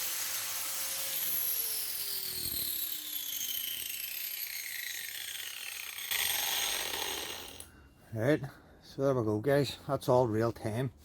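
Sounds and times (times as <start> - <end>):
angle grinder spinning down: 0.0 - 7.7.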